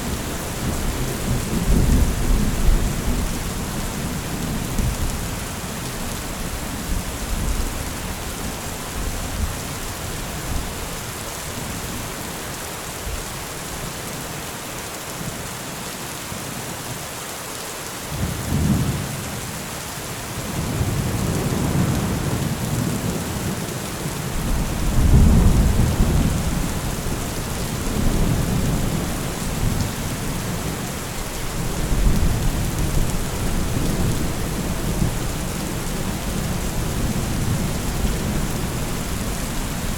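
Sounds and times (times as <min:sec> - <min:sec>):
steady rain: 0:00.0 - 0:39.9
rolling thunder: 0:24.4 - 0:30.8.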